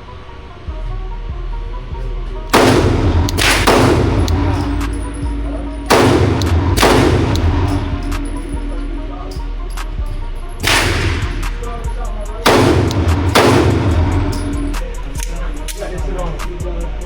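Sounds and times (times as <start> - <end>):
background music: 0.0 - 17.0
pistol shots ringing: 2.5 - 9.4, 10.6 - 15.0.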